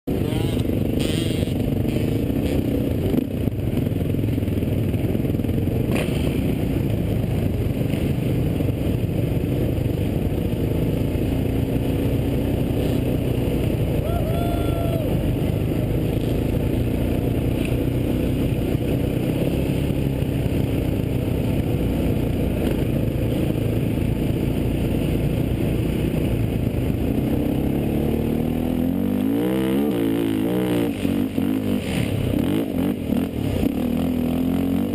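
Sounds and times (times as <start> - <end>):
quad engines revving: 0.1 - 3.4, 11.8 - 21.3, 27.1 - 34.9.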